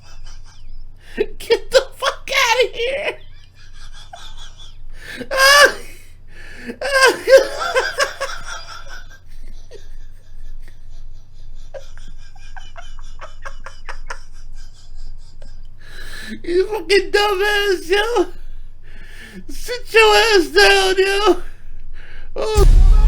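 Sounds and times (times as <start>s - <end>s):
person laughing hard: 0.0s - 0.8s, 3.1s - 5.7s, 6.8s - 15.6s.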